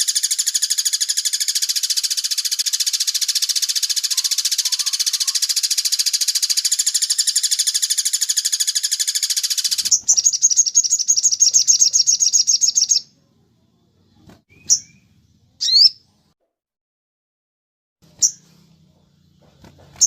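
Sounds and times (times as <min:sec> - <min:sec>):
short sharp bird chirps: 0:00.0 - 0:13.1, 0:14.5 - 0:16.0
songbird trilling: 0:00.0 - 0:13.1, 0:14.5 - 0:16.0.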